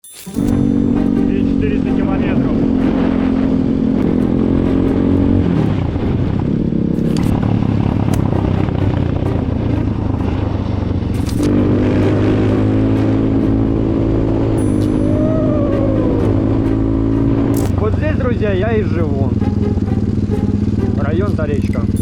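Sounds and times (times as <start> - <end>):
dirt bike engine running: 0.4 - 22.0
sharp clicks and clatters: 11.1 - 11.6.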